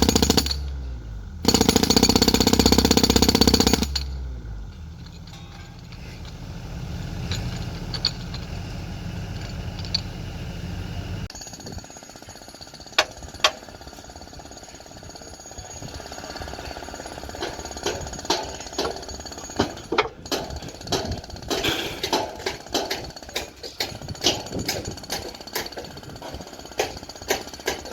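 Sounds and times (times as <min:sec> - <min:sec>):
machine hammering rapidly: 0:00.0 - 0:00.6, 0:01.4 - 0:04.0.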